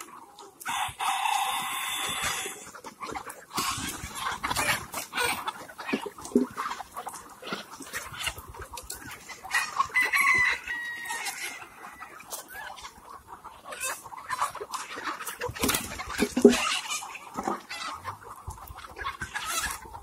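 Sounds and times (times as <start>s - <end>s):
chickens clucking: 0.0s - 20.0s
rooster crowing: 0.7s - 2.5s, 10.0s - 11.6s.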